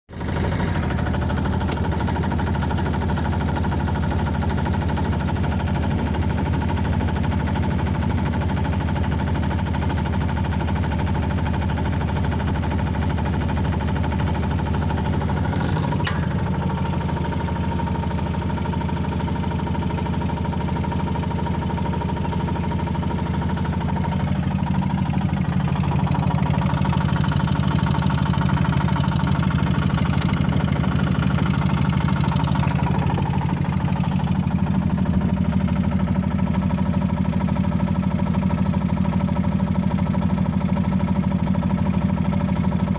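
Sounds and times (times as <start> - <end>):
engine running steadily: 0.1 - 42.9
click: 1.7 - 1.9, 15.6 - 16.3, 30.1 - 30.4.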